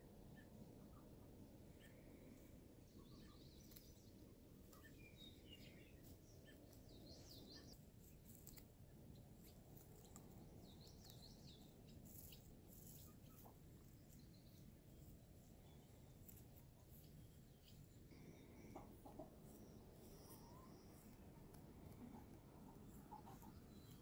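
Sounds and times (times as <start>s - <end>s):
faint low rumble: 0.0s - 24.0s
small birds chirping: 0.0s - 24.0s.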